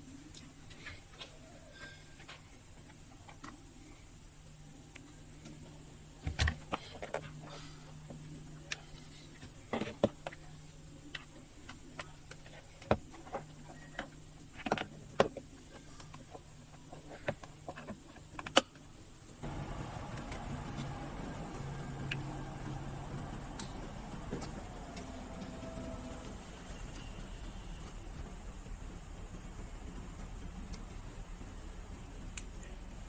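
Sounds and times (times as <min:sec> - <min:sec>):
faint low hum: 0:00.0 - 0:33.0
loud steady noise: 0:19.4 - 0:33.0.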